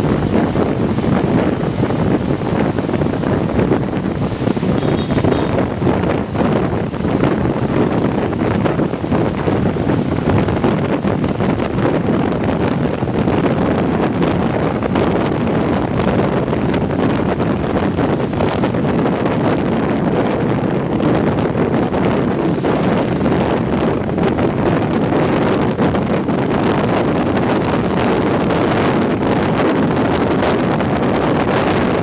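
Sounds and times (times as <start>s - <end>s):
coach road noise: 0.0s - 10.6s
wind buffeting microphone: 0.0s - 32.0s.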